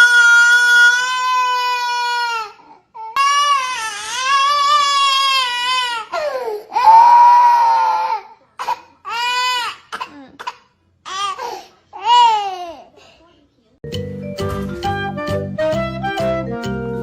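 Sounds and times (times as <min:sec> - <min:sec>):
loud wailing cries: 0:00.0 - 0:02.5, 0:03.2 - 0:08.3.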